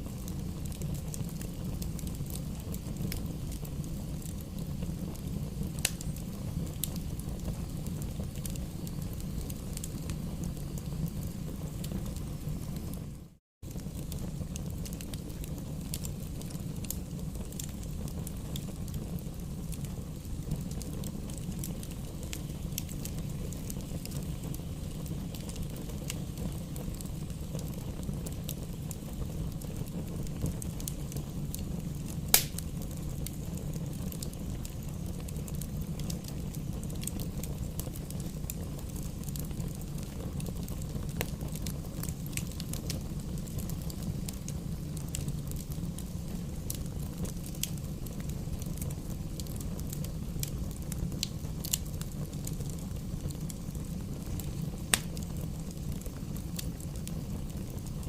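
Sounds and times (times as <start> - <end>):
campfire flames rumbling: 0.0 - 58.0
fire crackles: 0.0 - 58.0
loud sharp fire pop: 32.3 - 32.6.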